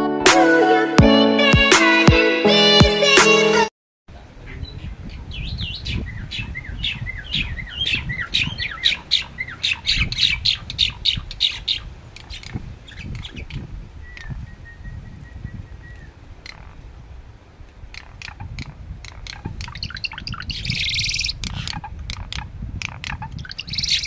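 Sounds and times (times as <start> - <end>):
intro music: 0.0 - 3.7.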